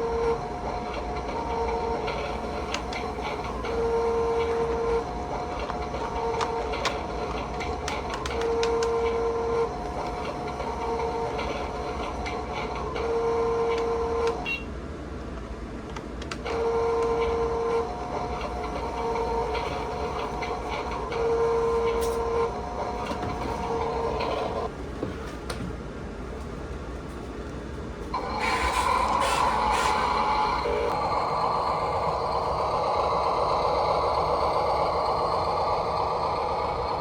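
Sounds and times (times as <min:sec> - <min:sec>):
steady motor whine: 0:16.4 - 0:24.7, 0:28.1 - 0:37.0
small electric motors whirring: 0:28.2 - 0:36.9.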